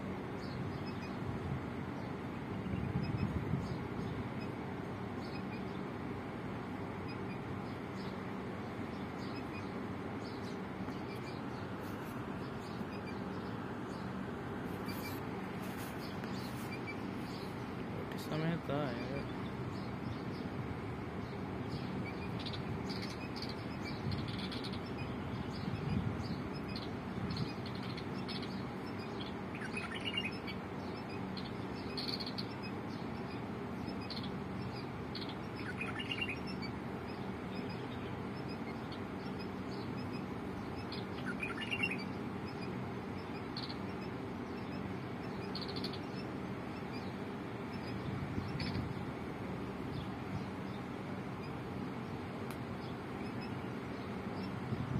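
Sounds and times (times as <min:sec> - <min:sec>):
small birds chirping: 0:00.0 - 0:54.9
steady background hiss: 0:00.0 - 0:54.9
prominent bird call: 0:26.6 - 0:48.9.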